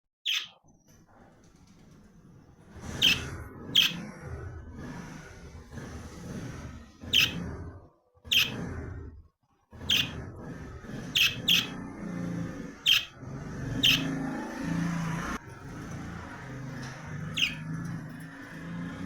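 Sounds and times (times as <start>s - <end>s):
bird chirping: 0.2s - 0.6s, 3.0s - 4.0s, 7.0s - 7.4s, 8.3s - 8.6s, 9.8s - 10.2s, 11.0s - 11.9s, 12.8s - 14.3s, 16.8s - 18.6s.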